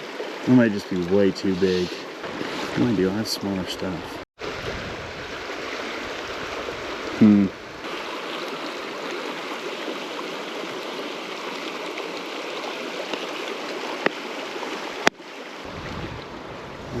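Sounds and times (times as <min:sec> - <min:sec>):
river water rushing: 0:00.0 - 0:17.0
wind rumble on microphone: 0:04.4 - 0:07.8, 0:15.6 - 0:17.0.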